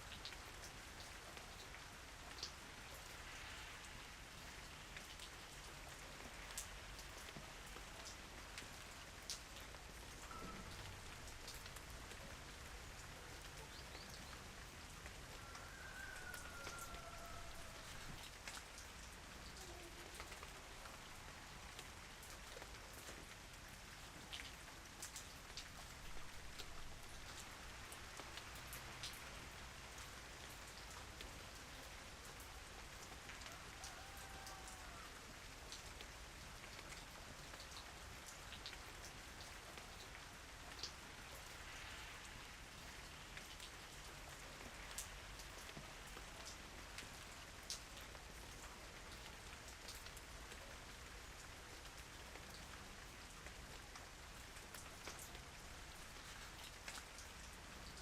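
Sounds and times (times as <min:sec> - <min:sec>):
raindrops ticking on surface: 0:00.0 - 0:58.0
soft rain: 0:00.0 - 0:58.0.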